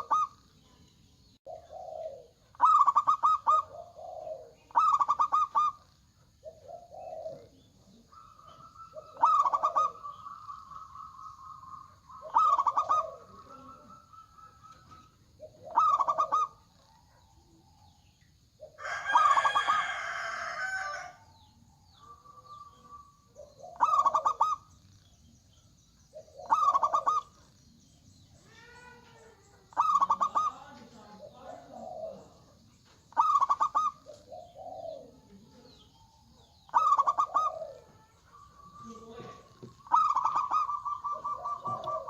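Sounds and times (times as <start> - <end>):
dove cooing: 0.0 - 0.8, 1.4 - 42.0
rooster crowing: 18.8 - 21.4.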